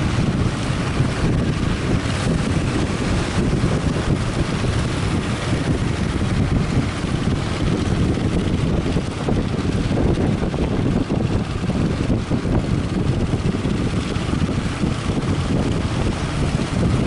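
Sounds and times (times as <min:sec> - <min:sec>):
surf rushing: 0:00.0 - 0:17.0
wind buffeting microphone: 0:00.0 - 0:17.0.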